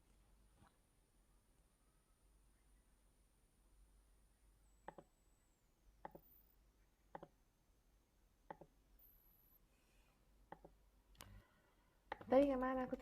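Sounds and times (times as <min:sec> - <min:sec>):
computer mouse clicks: 0:04.8 - 0:05.1, 0:06.0 - 0:06.3, 0:07.1 - 0:07.4, 0:08.5 - 0:08.8, 0:10.5 - 0:11.4, 0:12.1 - 0:12.6.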